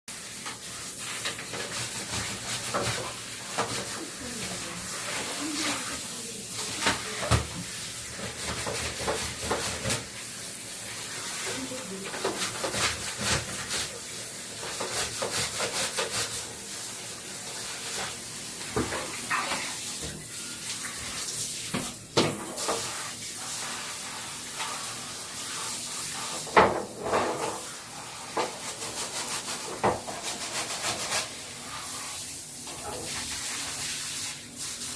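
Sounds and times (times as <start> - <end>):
hissing spray: 0.2 - 14.4.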